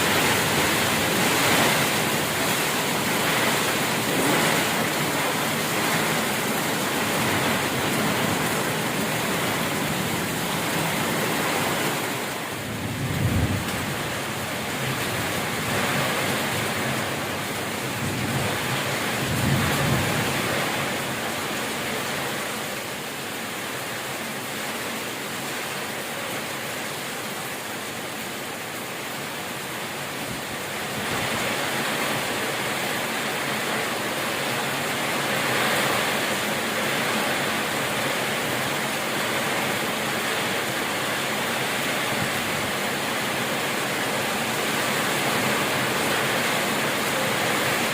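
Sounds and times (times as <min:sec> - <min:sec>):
steady rain hissing: 0:00.0 - 0:47.9
low rumbles of thunder: 0:12.6 - 0:16.4, 0:17.9 - 0:20.8.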